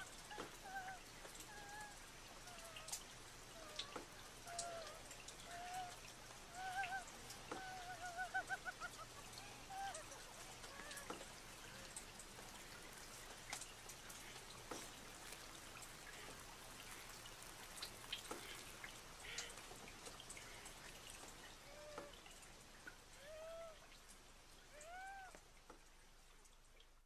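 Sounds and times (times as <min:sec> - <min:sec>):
wavering wordless voice: 0:00.0 - 0:13.0
water dripping and splashing: 0:00.0 - 0:27.0.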